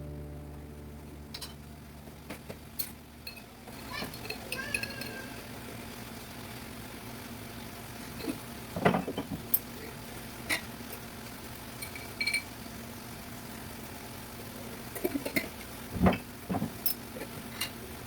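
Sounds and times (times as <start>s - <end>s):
low hum: 0.0s - 3.6s
pots and utensils clinking: 2.8s - 5.2s, 8.1s - 9.8s, 11.8s - 12.5s, 15.0s - 17.8s.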